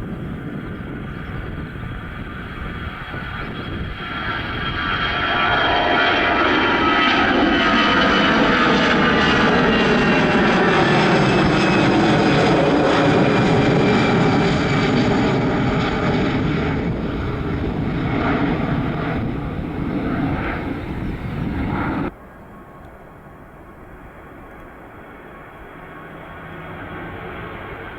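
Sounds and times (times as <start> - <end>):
airliner engines roaring past: 0.0 - 27.9.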